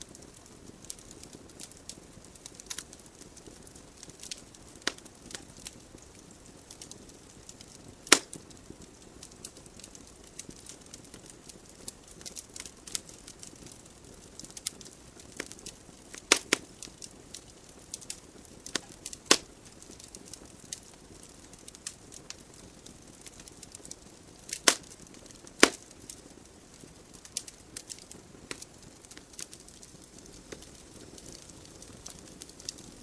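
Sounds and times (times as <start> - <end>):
wood logs crackling in fireplace: 0.0 - 33.0
sharp loud fire pops: 8.1 - 8.3, 25.6 - 25.8.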